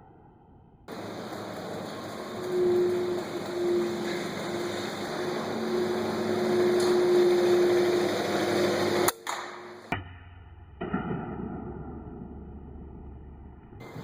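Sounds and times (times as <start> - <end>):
ventilation fans humming: 0.9 - 10.0
sharp crack: 8.6 - 13.2.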